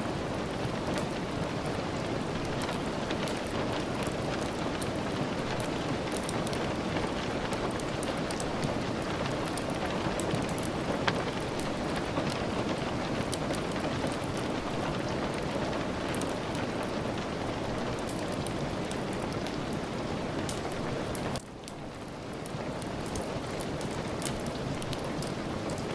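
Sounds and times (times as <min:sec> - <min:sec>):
heavy rain: 0:00.0 - 0:25.9.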